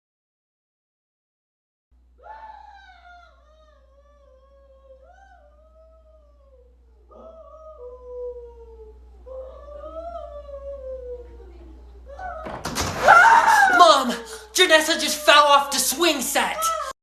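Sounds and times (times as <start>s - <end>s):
low steady hum: 2.0s - 17.0s
dog howling: 2.2s - 11.4s, 12.1s - 14.1s.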